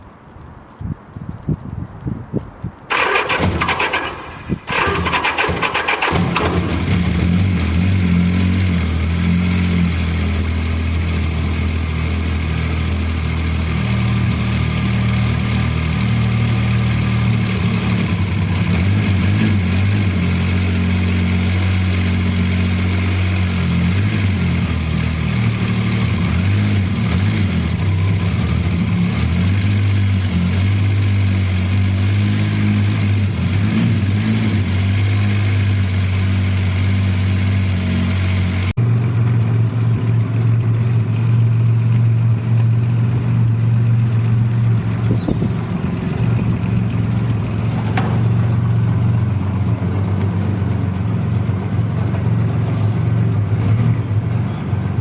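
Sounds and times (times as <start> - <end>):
motorcycle engine idling: 38.8 - 55.0.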